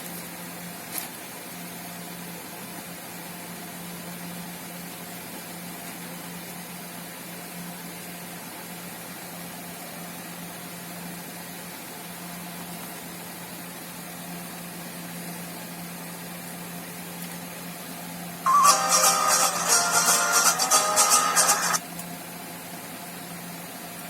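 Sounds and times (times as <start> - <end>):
guitar music from laptop speakers: 18.5 - 21.8.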